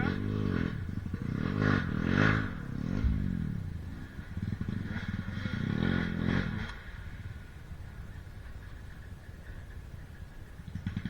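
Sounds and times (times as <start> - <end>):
motorcycle engine revving: 0.0 - 6.7.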